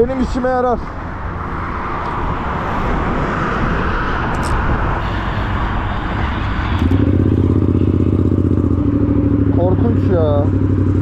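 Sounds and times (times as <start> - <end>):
vehicle rushing noise: 0.8 - 11.0
low hum: 4.4 - 9.6.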